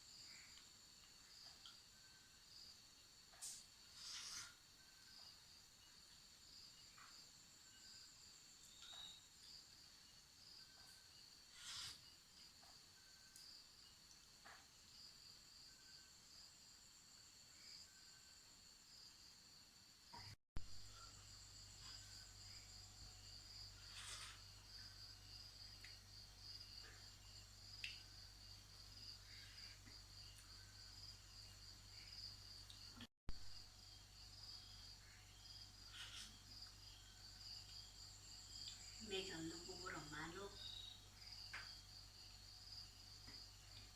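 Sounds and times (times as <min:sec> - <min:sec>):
night insects chirring: 0:00.0 - 0:43.9
crickets trilling: 0:20.8 - 0:43.9.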